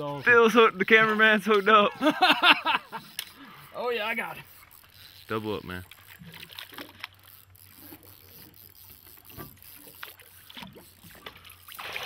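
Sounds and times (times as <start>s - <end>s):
water splashing: 4.2s - 12.0s.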